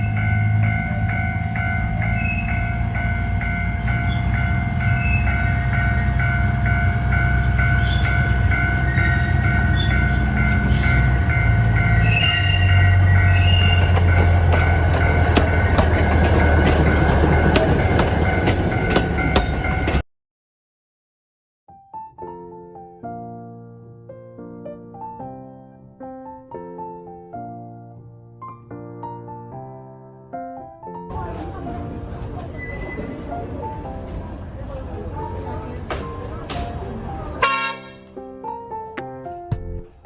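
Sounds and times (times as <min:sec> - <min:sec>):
train rumbling on rails: 0:00.0 - 0:20.0, 0:31.1 - 0:38.0.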